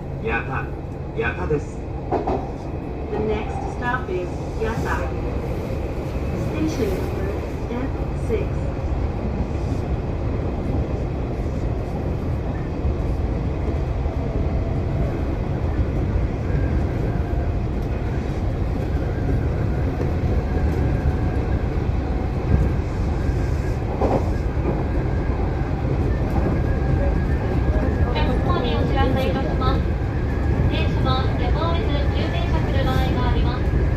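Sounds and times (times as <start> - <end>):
train wheels rumbling on track: 0.0 - 33.9.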